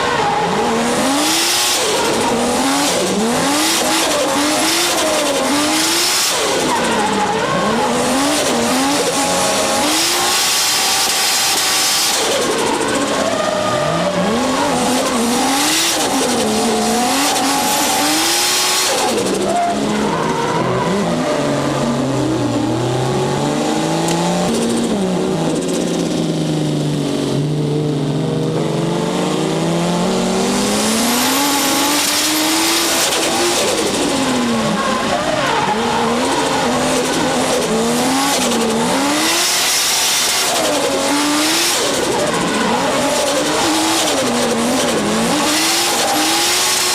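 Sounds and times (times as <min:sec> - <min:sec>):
turbocharged engine revving: 0:00.0 - 0:46.9.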